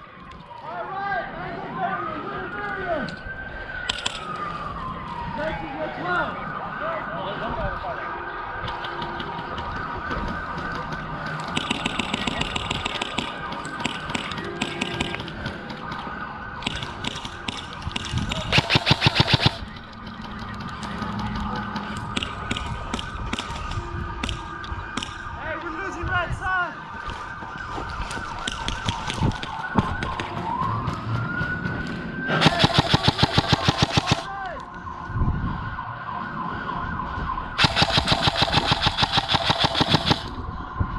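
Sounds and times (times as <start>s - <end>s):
siren wailing: 0.0s - 40.9s
airsoft guns firing: 10.4s - 19.8s, 32.4s - 34.3s, 37.6s - 40.4s
steady background tone: 10.6s - 26.0s, 32.4s - 34.3s, 37.6s - 40.5s.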